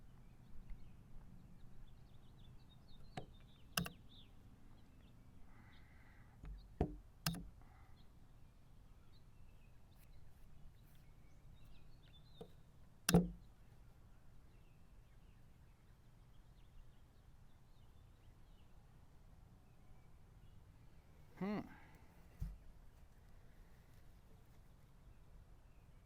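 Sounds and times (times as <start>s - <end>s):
faint birdsong: 0.0s - 26.0s
chess clock pressed: 3.8s - 4.0s, 6.4s - 7.5s, 13.1s - 13.4s.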